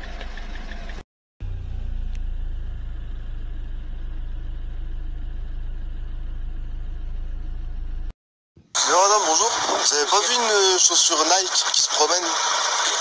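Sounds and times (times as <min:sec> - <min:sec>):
car engine low hum: 0:00.0 - 0:08.2.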